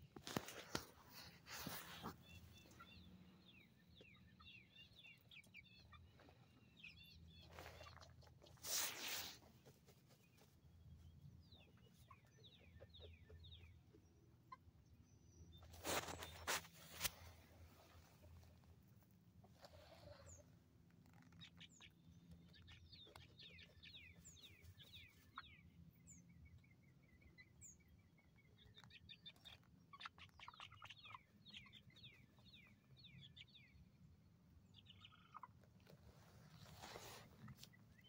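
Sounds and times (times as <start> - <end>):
faint chirping of small birds: 0.0 - 38.0
short rustle: 0.2 - 2.4, 8.5 - 10.2, 15.7 - 18.5.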